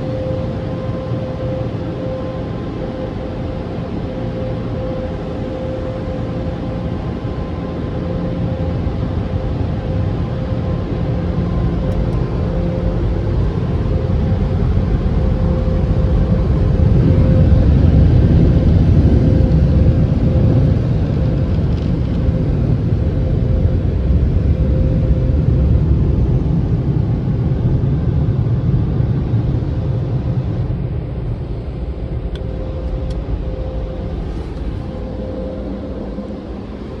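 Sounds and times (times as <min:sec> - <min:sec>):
faint constant hum: 0:00.0 - 0:37.0
car wash machinery rumbling: 0:30.7 - 0:37.0.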